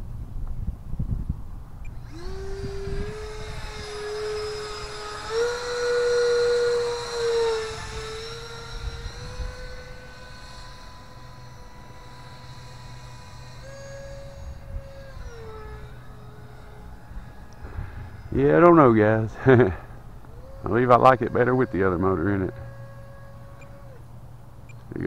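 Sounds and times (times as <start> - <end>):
model jet fan whine flying past: 0.0 - 25.0.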